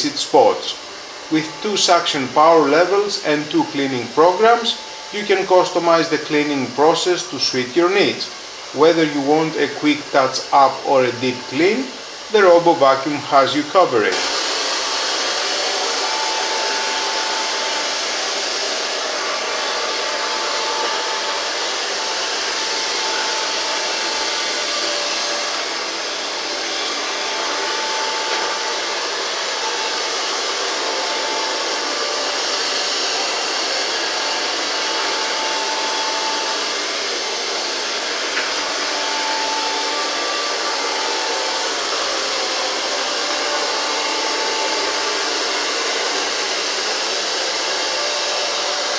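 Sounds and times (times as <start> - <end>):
robot vacuum cleaner running: 0.0 - 48.9.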